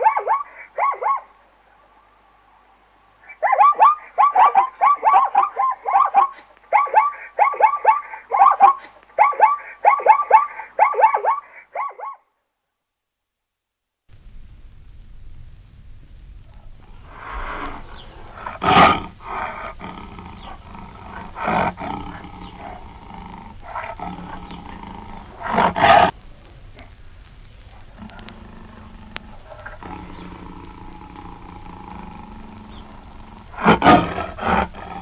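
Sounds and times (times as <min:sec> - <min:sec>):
big cat roaring and growling: 0:16.9 - 0:26.1, 0:27.8 - 0:35.0.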